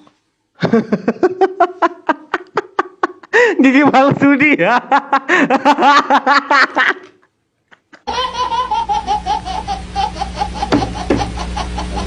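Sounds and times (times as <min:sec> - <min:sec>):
hearty rhythmic laughter: 0:00.6 - 0:03.6, 0:04.8 - 0:12.0
higher-pitched rapid laugh: 0:07.8 - 0:12.0
steady low hum: 0:08.1 - 0:12.0.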